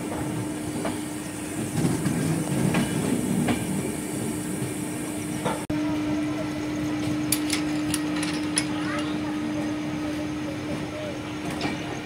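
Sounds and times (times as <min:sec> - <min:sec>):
train coaches rumbling: 0:00.0 - 0:12.0
wheel clacks over rail joints: 0:07.0 - 0:09.3.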